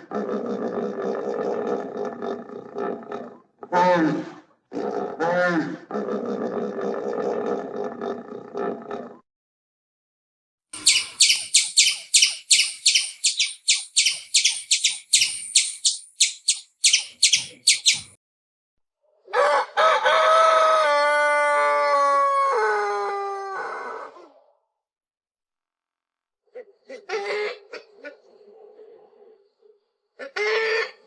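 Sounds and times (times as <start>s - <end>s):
sharp high bird chirps: 10.8s - 18.2s.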